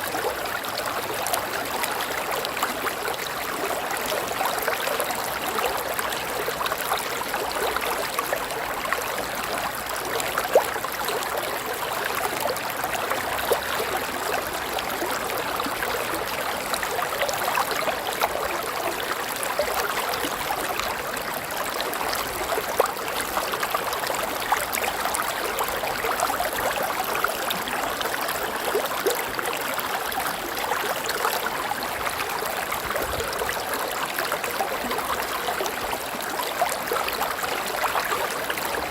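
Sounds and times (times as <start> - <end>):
river water babbling over rocks: 0.0 - 38.9.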